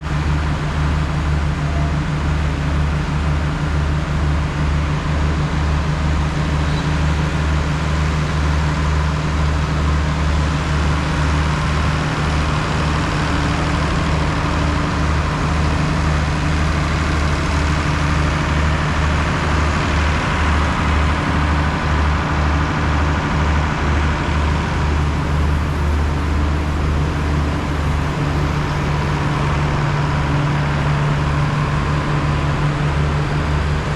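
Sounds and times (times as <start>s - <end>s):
large engine idling: 0.0s - 33.9s.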